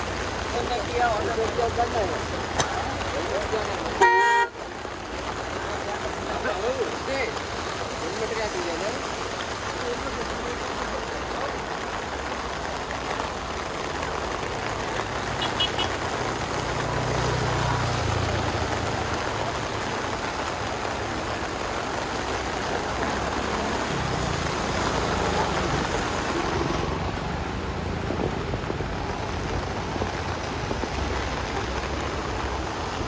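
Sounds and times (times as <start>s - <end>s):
floodwater rushing: 0.0s - 33.0s
vehicle engine hum: 13.3s - 33.0s.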